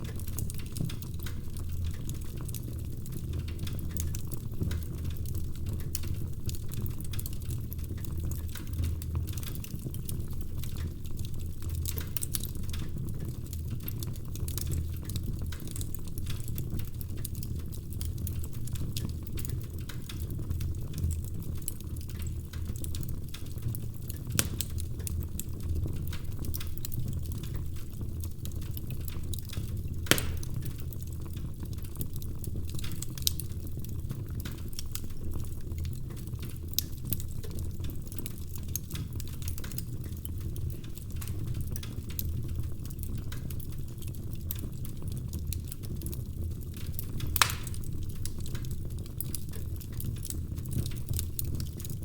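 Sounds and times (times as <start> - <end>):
logs crackling and snapping: 0.0 - 52.0
low roar of flames: 0.0 - 52.0
loud fire pops: 29.5 - 31.2, 47.2 - 48.4.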